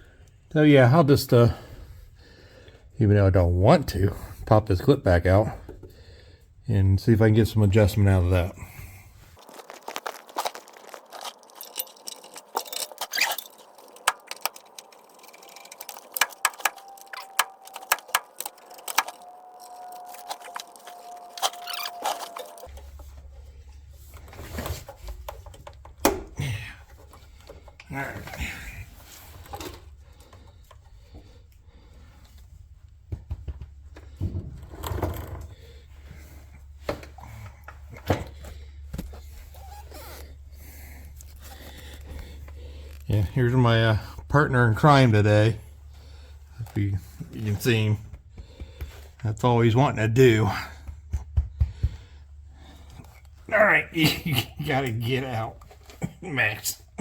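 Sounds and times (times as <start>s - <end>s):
clicks and rustling of hand work: 9.4s - 31.6s
small metallic clicks and clinks: 10.4s - 19.3s
faint steady high tone: 15.2s - 22.7s.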